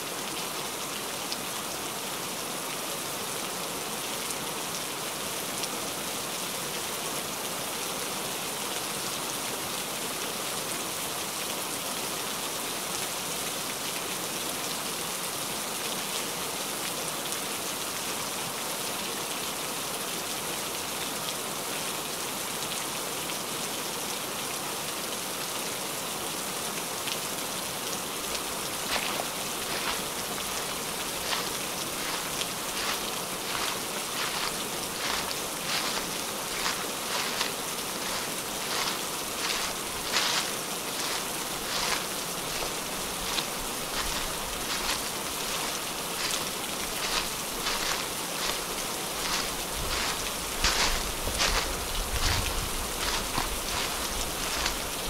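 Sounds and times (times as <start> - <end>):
heavy rain hissing: 25.1 - 55.0.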